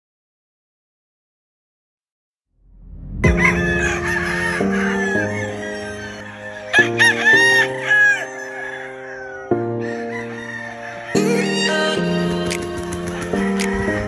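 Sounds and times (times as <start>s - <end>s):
background music: 3.2s - 14.0s
roosters crowing: 3.3s - 14.0s.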